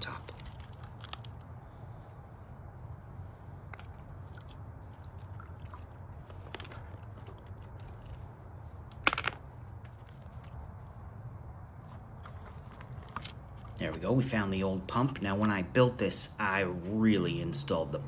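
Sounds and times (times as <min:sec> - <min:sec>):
low steady rumble: 0:00.0 - 0:18.0
stones knocking: 0:08.9 - 0:10.0.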